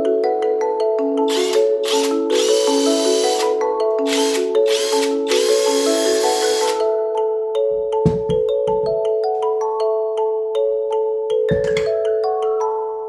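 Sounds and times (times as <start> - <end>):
marimba music: 0.0 - 13.0
cordless impact wrench: 1.3 - 6.8.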